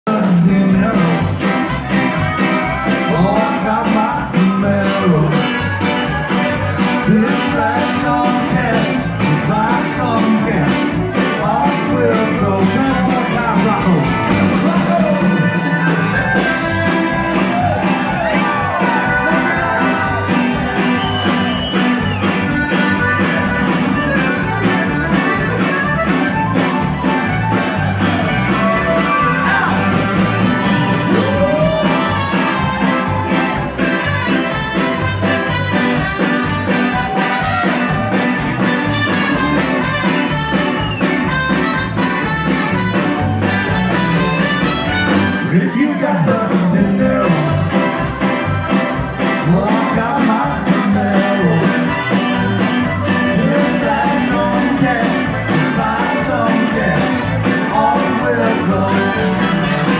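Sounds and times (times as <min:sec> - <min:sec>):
person singing: 0:00.1 - 0:22.0, 0:27.6 - 0:33.6, 0:45.3 - 0:59.9
live band playing: 0:00.1 - 0:59.9.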